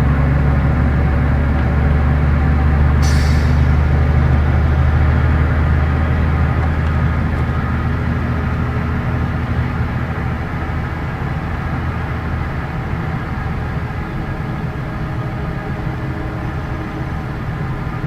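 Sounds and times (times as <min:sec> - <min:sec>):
bus diesel engine running: 0:00.0 - 0:18.0
road noise: 0:00.0 - 0:18.0.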